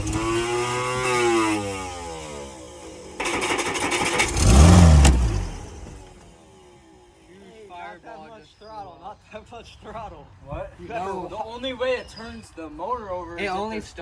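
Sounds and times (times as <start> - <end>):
boat engine revving: 0.0 - 6.3
engine cranking: 0.0 - 6.3.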